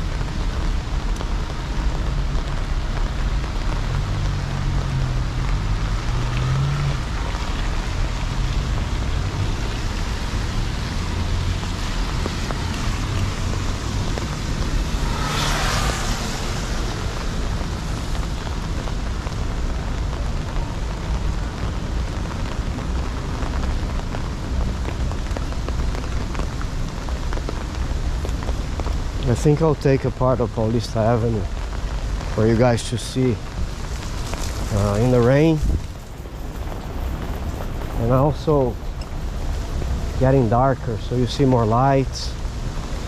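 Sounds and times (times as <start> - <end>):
light rain falling: 0.0 - 43.0
traffic on wet streets: 0.0 - 43.0
vehicle passing close: 4.0 - 18.7.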